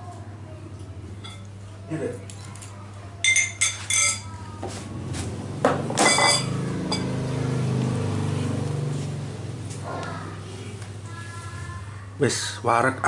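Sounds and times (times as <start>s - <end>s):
utensils clinking on ceramic bowls: 1.2s - 1.5s, 2.5s - 4.4s, 5.9s - 7.3s.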